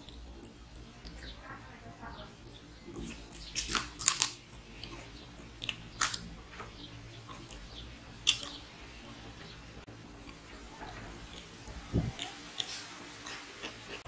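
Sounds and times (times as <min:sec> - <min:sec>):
person chewing food: 0:02.4 - 0:08.7, 0:10.1 - 0:14.0.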